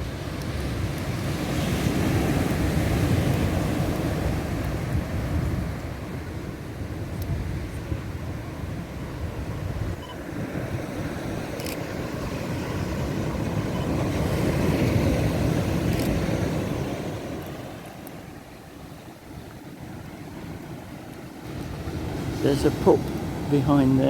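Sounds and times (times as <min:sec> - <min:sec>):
surf breaking on shore: 0:00.0 - 0:24.0
faint camera clicks: 0:11.5 - 0:11.8, 0:15.9 - 0:16.2.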